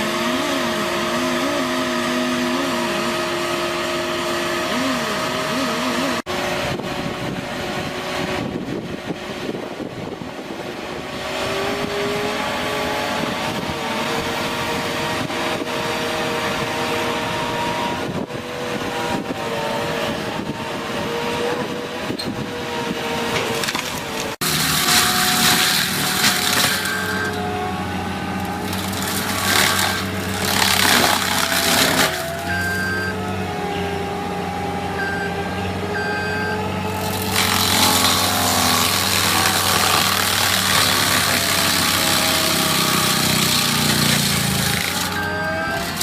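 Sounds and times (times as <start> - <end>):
heavy machine running under load: 0.0 - 46.0
wood cracking and crushing: 23.4 - 27.5, 28.3 - 32.8, 36.9 - 46.0.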